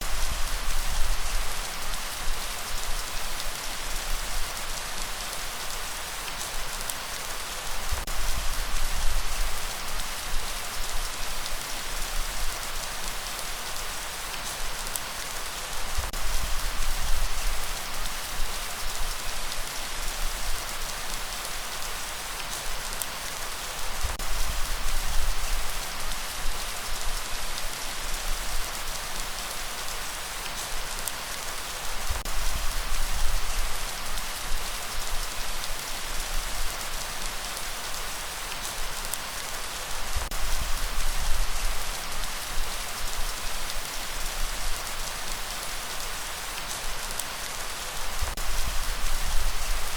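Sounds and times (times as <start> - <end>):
heavy rainfall: 0.0 - 49.9.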